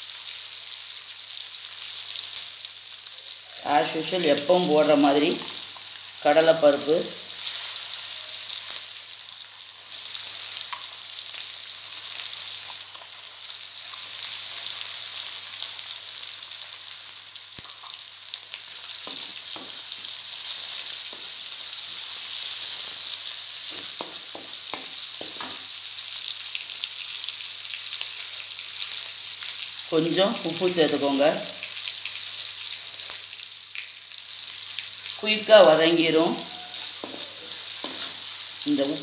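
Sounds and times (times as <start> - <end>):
vegetables sizzling in hot oil: 0.0 - 39.0
wooden spatula scraping a pan: 36.4 - 38.5.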